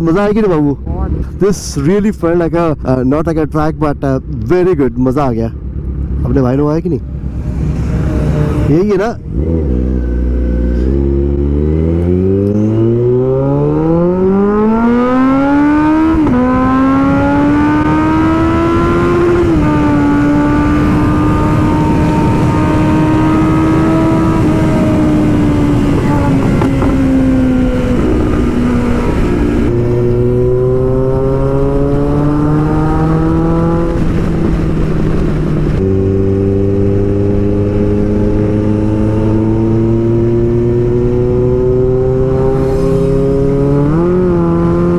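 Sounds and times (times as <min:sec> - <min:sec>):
motorcycle engine accelerating: 0:05.6 - 0:44.9
wind on microphone: 0:13.9 - 0:44.9.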